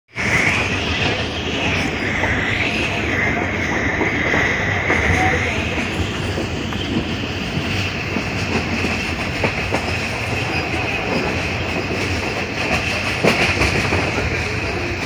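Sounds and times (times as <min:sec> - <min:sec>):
train rumble and rush: 0:00.1 - 0:15.0.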